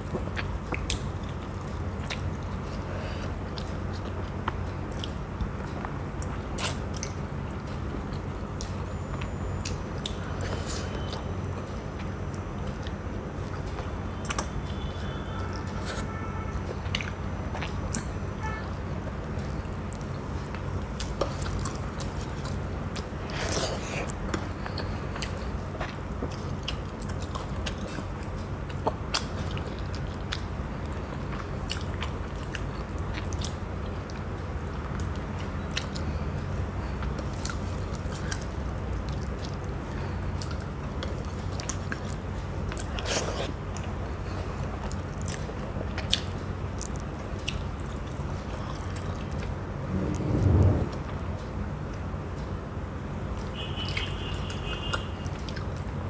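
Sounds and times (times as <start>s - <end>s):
steady low hum: 0.0s - 56.0s
person chewing and biting: 15.5s - 18.2s, 19.4s - 36.1s, 40.3s - 50.9s.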